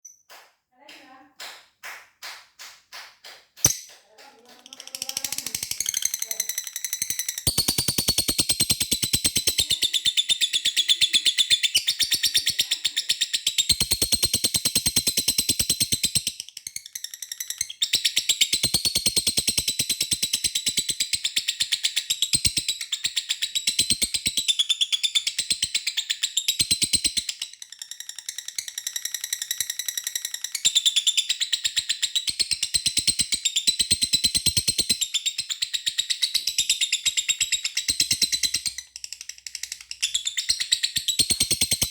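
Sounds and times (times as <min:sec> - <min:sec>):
lovebird chattering trill: 0:03.6 - 0:14.5.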